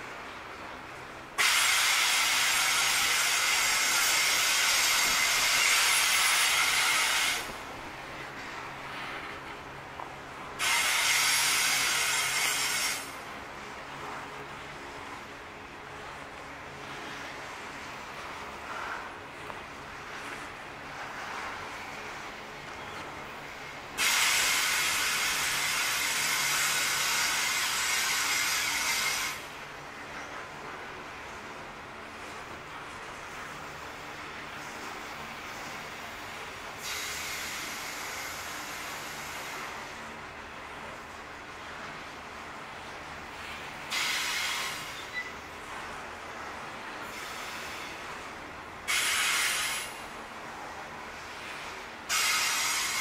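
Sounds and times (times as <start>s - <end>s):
loud train hiss: 1.4s - 7.9s, 10.6s - 13.2s, 23.6s - 29.6s, 34.6s - 40.2s, 43.4s - 45.4s, 47.0s - 53.0s.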